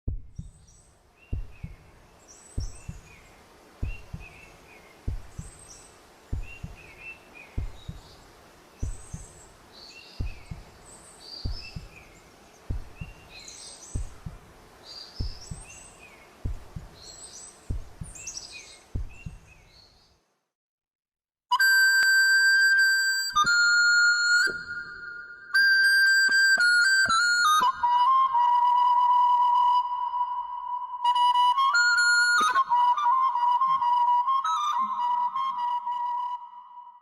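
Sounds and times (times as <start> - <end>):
low heartbeat-like thumps: 0.1 - 0.7, 1.3 - 2.0, 2.6 - 3.2, 3.8 - 5.6, 6.3 - 7.0, 7.6 - 8.2, 8.8 - 9.4, 10.2 - 10.8, 11.4 - 14.6, 15.2 - 15.8, 16.4 - 17.1, 17.7 - 19.6
birds chirping: 0.1 - 20.3.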